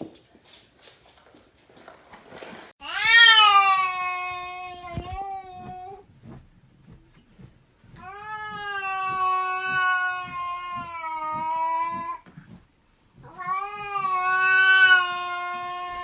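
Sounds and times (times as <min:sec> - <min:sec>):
cat yowling: 0:13.3 - 0:16.0.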